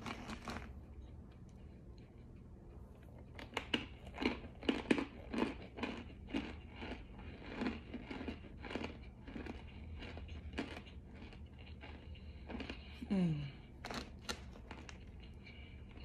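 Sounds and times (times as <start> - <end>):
chewing hard crunchy food: 0.0 - 16.0.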